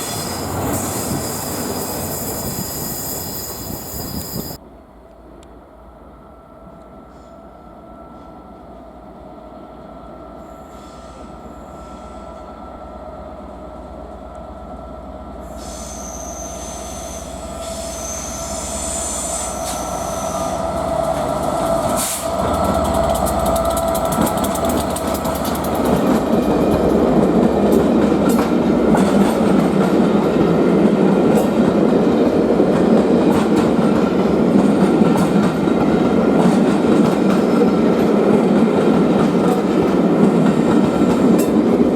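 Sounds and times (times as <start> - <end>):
high squeal from train wheels: 0.0 - 4.7, 6.3 - 8.8, 10.0 - 13.4, 14.6 - 29.9
train rumble and clickety-clack: 0.0 - 41.9.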